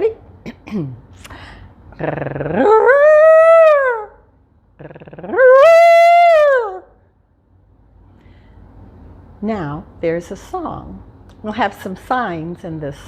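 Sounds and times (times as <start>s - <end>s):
woman imitating elephant call: 2.0s - 3.8s.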